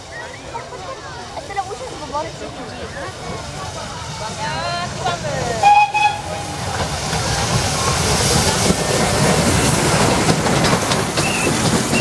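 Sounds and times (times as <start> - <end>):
steam train rolling past: 0.0 - 12.0.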